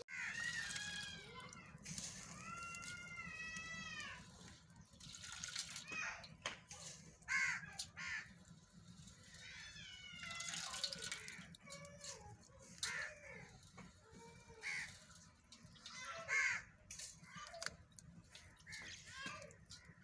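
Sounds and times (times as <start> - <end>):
soft bird chirping and warbling: 0.2 - 20.0.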